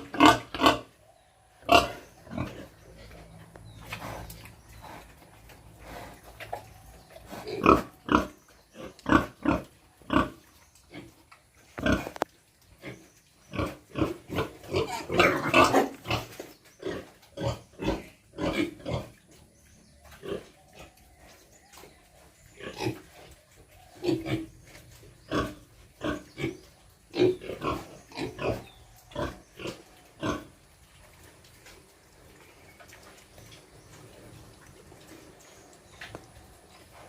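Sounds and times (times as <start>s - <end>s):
pigs grunting: 0.0s - 0.9s, 1.6s - 19.4s, 20.1s - 21.3s, 22.5s - 30.6s.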